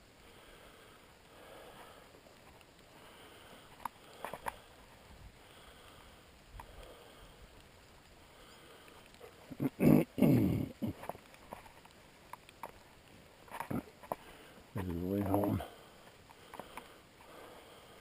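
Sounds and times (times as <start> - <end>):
faint movement sounds: 0.0 - 18.0
small clicks: 10.8 - 17.3.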